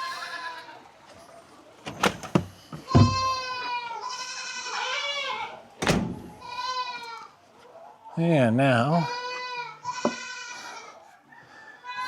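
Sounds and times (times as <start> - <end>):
goats bleating: 0.0 - 0.9, 2.8 - 5.7, 6.3 - 7.4, 8.8 - 11.0
sharp knocks: 2.1 - 3.3.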